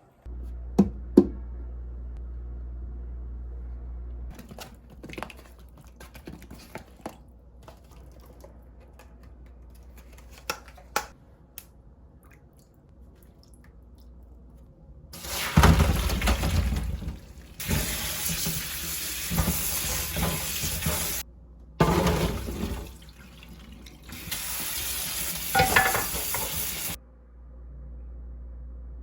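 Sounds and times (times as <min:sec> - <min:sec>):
low hum: 0:00.0 - 0:04.4, 0:27.0 - 0:29.0
tap water running into sink: 0:15.2 - 0:21.2, 0:21.8 - 0:27.0
kitchen items clicking and knocking: 0:25.5 - 0:26.6.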